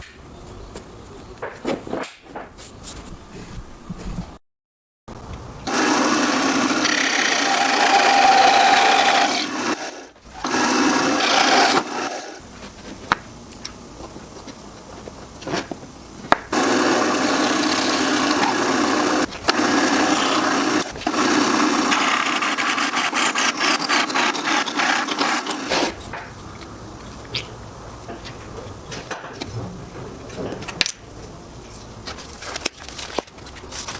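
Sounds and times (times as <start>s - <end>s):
power tool working wood: 5.7s - 12.4s, 16.5s - 26.0s.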